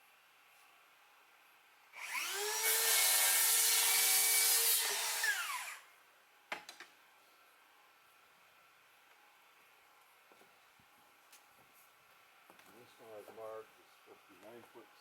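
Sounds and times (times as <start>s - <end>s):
power saw cutting wood: 2.0s - 5.8s.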